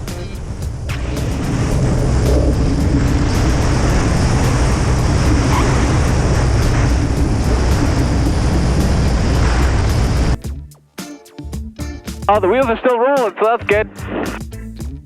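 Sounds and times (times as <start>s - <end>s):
light aircraft engine droning: 0.0s - 10.4s
wind and airframe noise: 0.0s - 10.4s.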